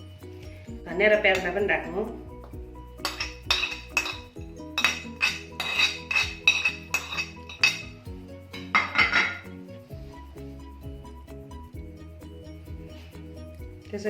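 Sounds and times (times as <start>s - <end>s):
metal spoon clinking on bowl: 3.0s - 7.9s, 8.6s - 9.5s.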